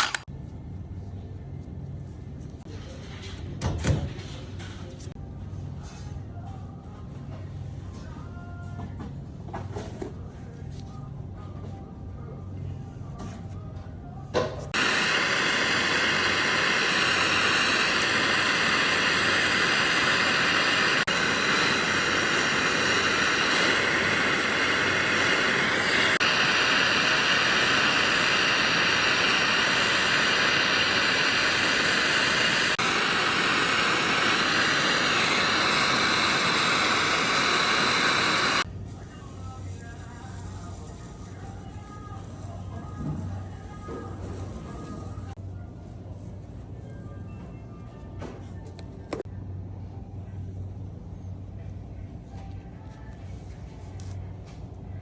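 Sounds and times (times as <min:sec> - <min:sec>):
gas torch hissing: 0:14.4 - 0:45.4.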